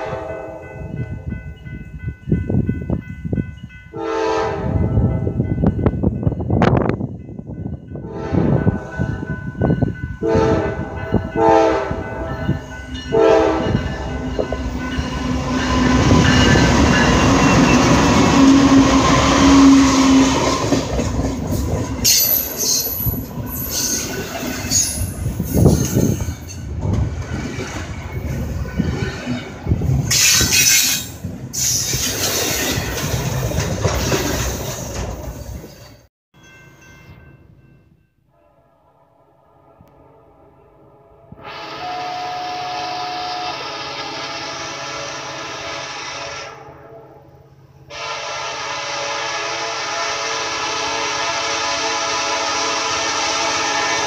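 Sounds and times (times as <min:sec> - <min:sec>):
locomotive air horn blasts: 0:00.0 - 0:00.7, 0:03.9 - 0:05.0, 0:08.0 - 0:09.3, 0:10.2 - 0:14.4, 0:15.1 - 0:20.8, 0:38.6 - 0:54.0
diesel locomotive engines passing: 0:00.0 - 0:54.0
train cars clacking over rail joints: 0:13.1 - 0:36.0.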